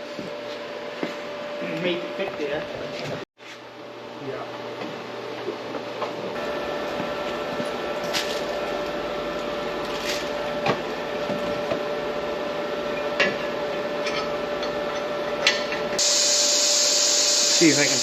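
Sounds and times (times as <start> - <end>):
machinery humming: 6.4 - 18.0.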